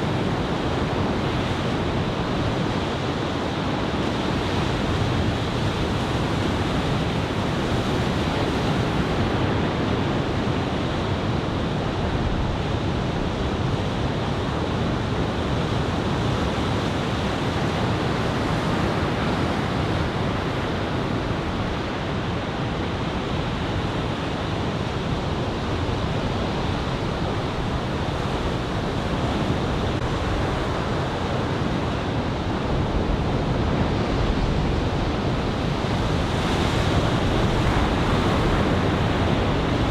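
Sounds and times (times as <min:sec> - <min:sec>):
wind buffeting microphone: 0:00.0 - 0:39.9
ocean surf breaking: 0:17.9 - 0:39.9.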